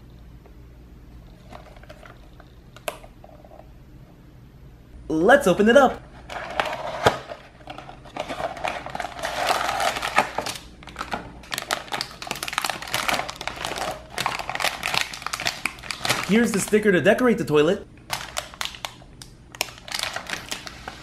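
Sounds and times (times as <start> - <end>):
cellophane crinkling: 6.2 - 16.9, 18.1 - 21.0.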